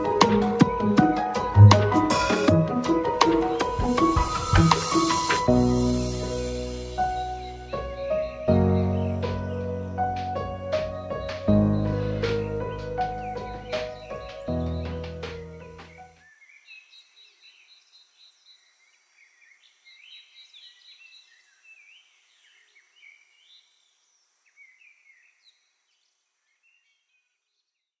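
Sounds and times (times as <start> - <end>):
music track: 0.0 - 16.1
birdsong chirps: 3.1 - 28.0
low hiss: 3.2 - 8.1.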